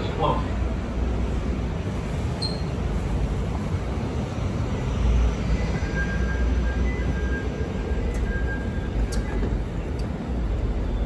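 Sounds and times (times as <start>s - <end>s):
rail car low rumble: 0.0s - 11.0s.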